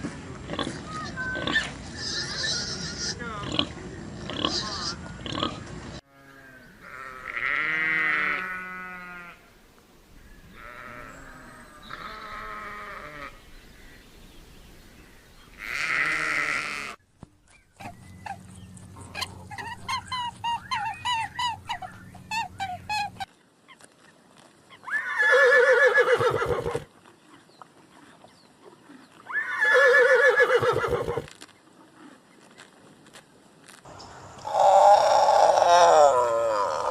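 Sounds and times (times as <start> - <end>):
goats bleating: 6.1 - 9.4, 15.6 - 17.0.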